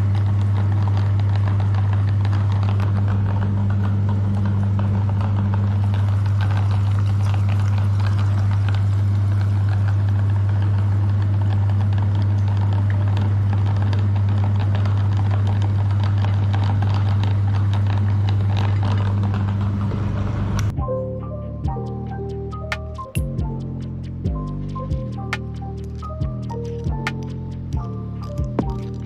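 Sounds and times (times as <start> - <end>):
crackling and rattling of ice cream: 0.0 - 20.7, 22.5 - 29.0
meat grinder motor hum: 0.0 - 20.7.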